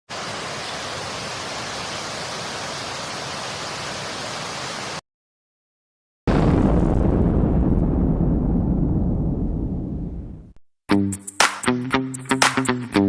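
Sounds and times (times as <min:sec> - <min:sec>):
static-like rushing hiss: 0:00.1 - 0:05.0.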